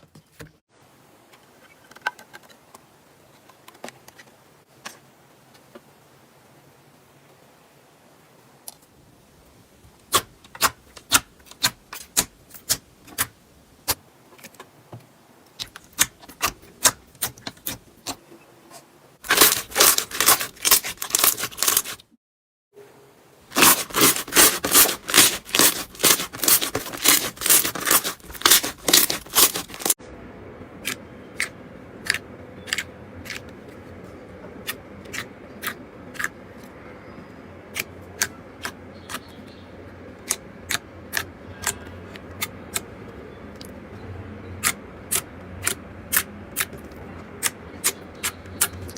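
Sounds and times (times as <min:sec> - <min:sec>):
faint steady hum: 0:22.8 - 0:48.9.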